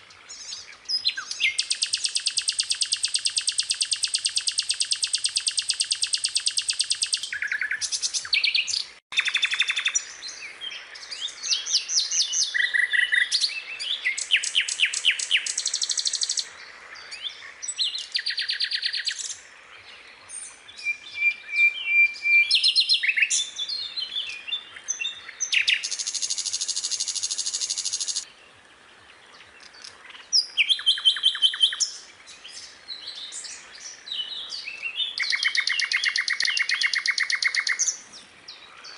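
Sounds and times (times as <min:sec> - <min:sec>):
skylark singing trills: 0:00.9 - 0:10.0, 0:34.2 - 0:38.0.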